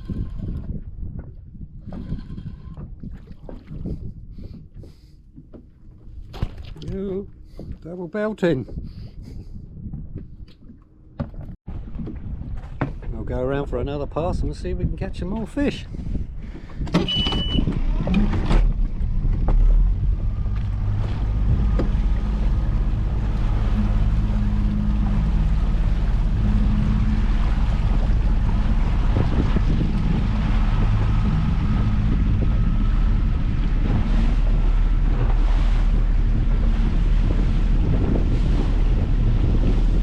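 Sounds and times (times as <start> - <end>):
boat engine running: 0.0 - 14.8, 15.4 - 40.0
wind buffeting microphone: 0.0 - 40.0
water rushing past hull: 15.7 - 40.0.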